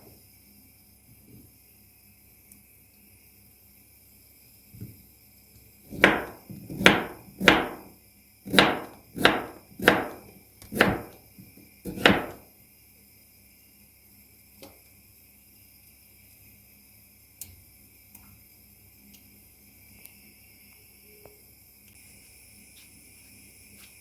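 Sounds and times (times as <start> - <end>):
sharp knocks: 5.9 - 7.9, 8.5 - 10.2, 10.8 - 11.2, 11.9 - 12.4.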